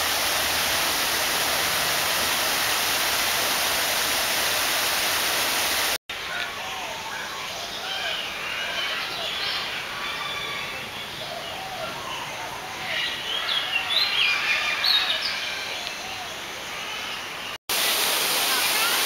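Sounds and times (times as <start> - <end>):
waterfall rushing: 0.0 - 6.0, 17.7 - 19.0.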